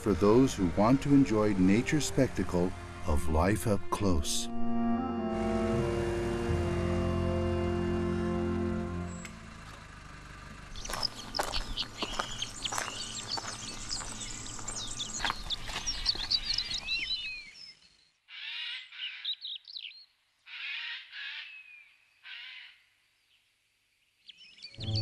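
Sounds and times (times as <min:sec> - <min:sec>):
songbirds chirping: 0:00.0 - 0:04.5, 0:08.3 - 0:25.0
harsh rasping bird calls: 0:10.7 - 0:17.7, 0:18.3 - 0:22.8.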